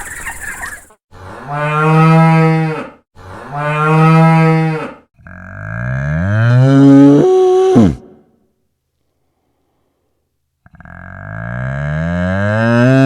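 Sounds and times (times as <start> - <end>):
cow mooing: 1.3 - 8.1, 10.7 - 13.0.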